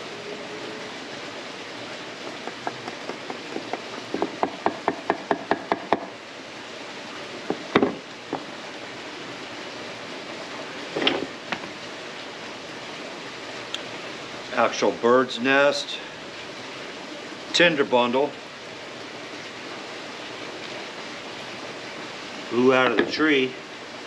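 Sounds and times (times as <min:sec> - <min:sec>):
sharp wooden knocks: 0:02.2 - 0:06.1, 0:07.4 - 0:08.5.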